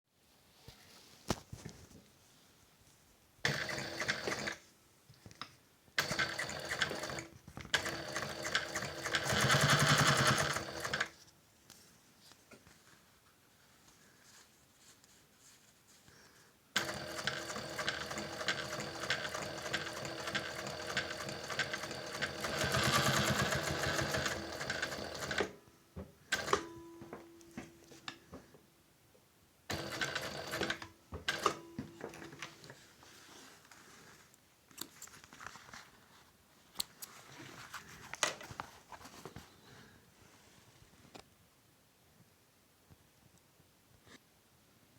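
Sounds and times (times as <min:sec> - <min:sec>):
sewing machine stitching: 0:03.4 - 0:04.6, 0:06.0 - 0:11.1, 0:16.8 - 0:25.6, 0:26.3 - 0:26.7, 0:29.7 - 0:31.6.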